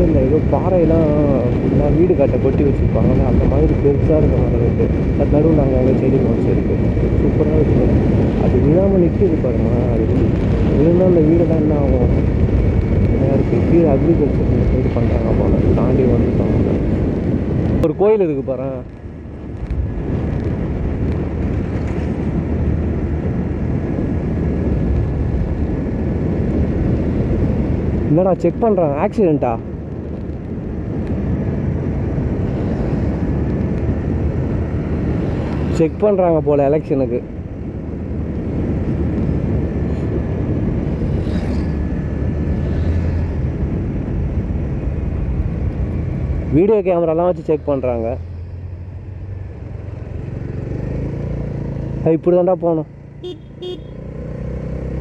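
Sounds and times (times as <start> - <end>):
wind on microphone: 0.0 - 52.0
road noise: 0.0 - 55.0
motorcycle engine: 37.3 - 55.0.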